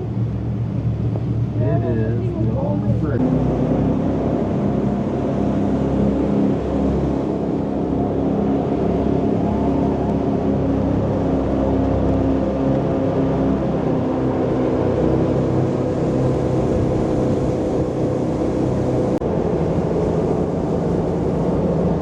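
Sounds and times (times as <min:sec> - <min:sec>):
boat engines droning: 0:00.0 - 0:22.0.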